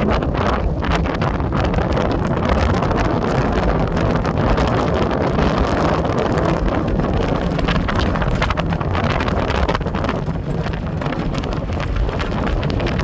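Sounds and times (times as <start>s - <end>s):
atv engine running: 0.0s - 13.0s
wind buffeting microphone: 0.0s - 13.0s.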